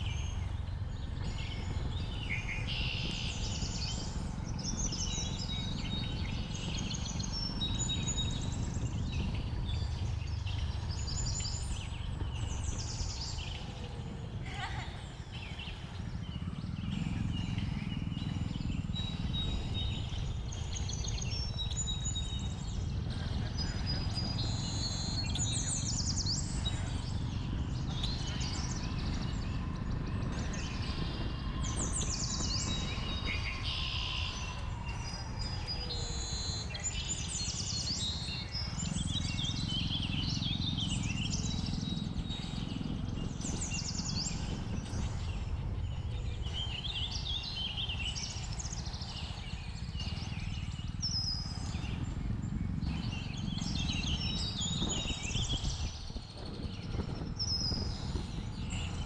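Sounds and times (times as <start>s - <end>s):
birds chirping and calling: 0.0s - 59.0s
motorcycle engine rumble: 0.0s - 59.0s
wind: 0.0s - 59.0s.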